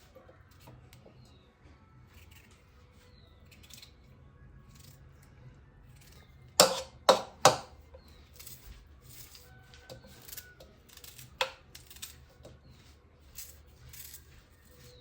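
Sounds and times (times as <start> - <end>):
sharp loud strokes: 6.6 - 7.7
faint handling sounds: 7.8 - 15.0.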